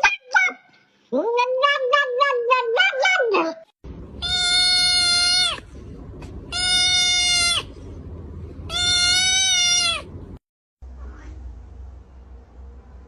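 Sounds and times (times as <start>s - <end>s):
cat meowing: 4.2s - 5.6s, 6.5s - 7.7s, 8.7s - 10.1s.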